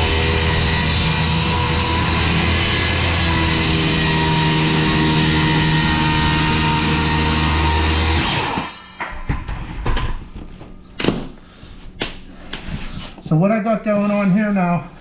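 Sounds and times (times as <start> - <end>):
circular saw cutting wood: 0.0 - 8.9.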